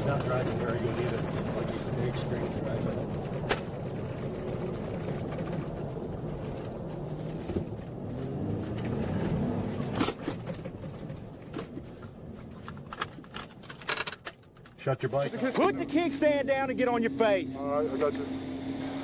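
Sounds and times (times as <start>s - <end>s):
vehicle engine revving: 0.0s - 10.8s, 15.9s - 19.0s.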